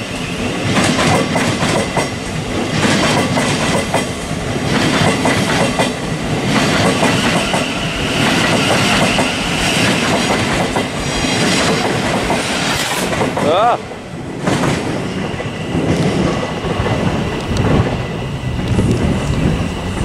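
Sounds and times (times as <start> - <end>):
train wheels clattering over joints: 0.7 - 13.8.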